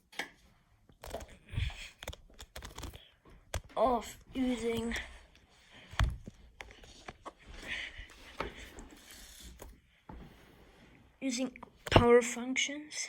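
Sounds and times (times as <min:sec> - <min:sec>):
soft handling clicks and taps: 0:02.0 - 0:07.5.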